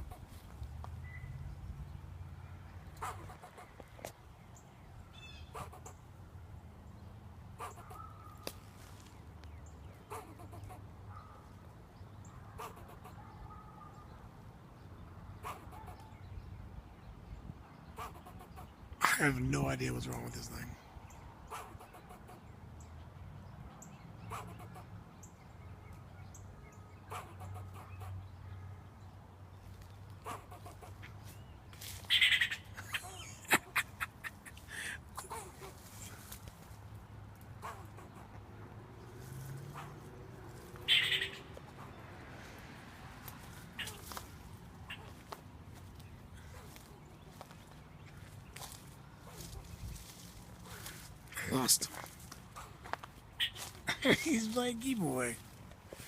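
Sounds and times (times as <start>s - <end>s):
squirrel alarm barks: 2.9s - 3.8s, 5.2s - 6.0s, 7.5s - 8.6s, 10.0s - 11.5s, 12.2s - 14.2s, 15.4s - 16.2s, 17.9s - 20.6s, 21.5s - 22.5s, 23.8s - 24.9s, 26.2s - 28.7s, 30.2s - 31.0s, 32.1s - 36.4s, 37.6s - 38.4s, 40.8s - 42.1s, 43.8s - 44.2s.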